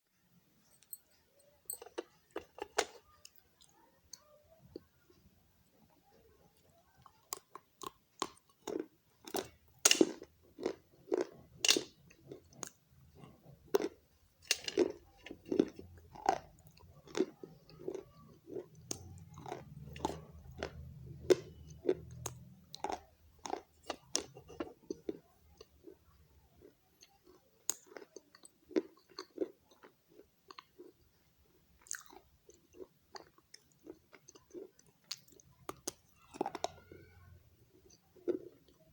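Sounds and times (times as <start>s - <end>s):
person chewing crunchy clay: 7.2s - 26.0s, 26.6s - 38.9s.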